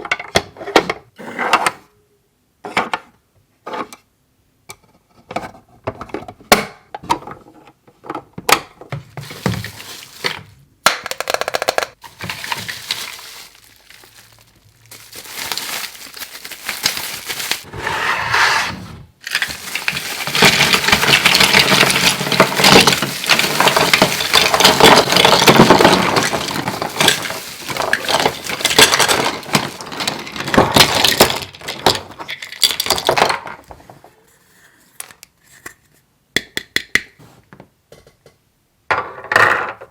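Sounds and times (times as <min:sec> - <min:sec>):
plastic crackling and rustling: 0:09.2 - 0:17.8, 0:19.2 - 0:34.0
plastic toy pieces clicking: 0:10.9 - 0:12.0.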